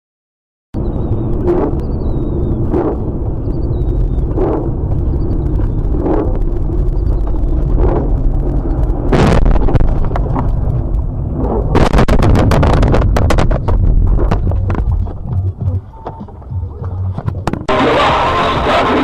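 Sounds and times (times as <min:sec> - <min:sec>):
heavy low rumble: 0:00.7 - 0:19.0
sharp cracks and crunches: 0:04.3 - 0:15.4
loud crash impact: 0:09.1 - 0:10.0, 0:11.8 - 0:14.0.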